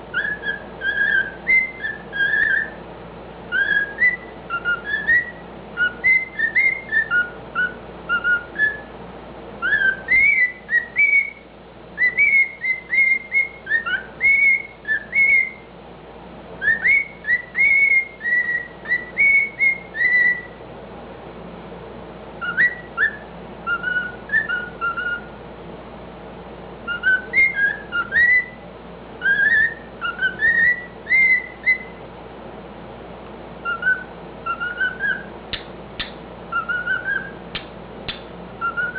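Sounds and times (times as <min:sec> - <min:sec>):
cockatiel whistling: 0:00.1 - 0:02.8, 0:03.5 - 0:08.9, 0:09.6 - 0:11.4, 0:12.0 - 0:15.7, 0:16.6 - 0:20.6, 0:22.4 - 0:25.4, 0:26.8 - 0:28.6, 0:29.2 - 0:32.0, 0:33.6 - 0:38.9.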